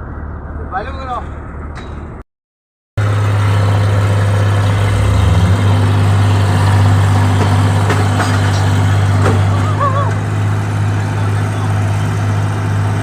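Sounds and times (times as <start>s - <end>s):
harvester engine running: 3.0s - 13.0s.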